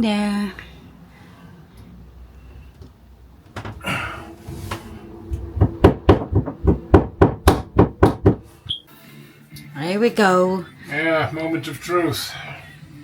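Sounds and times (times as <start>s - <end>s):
hammer blows: 3.8s - 8.7s
short scrape: 3.9s - 5.4s.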